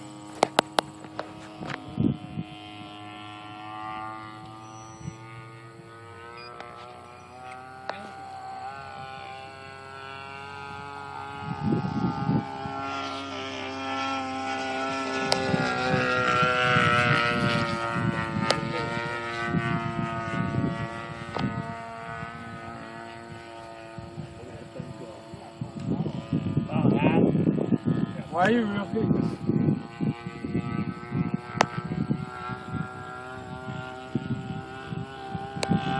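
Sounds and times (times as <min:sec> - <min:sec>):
model plane engine drone: 0:00.0 - 0:35.9
wind gusts on microphone: 0:00.0 - 0:35.9.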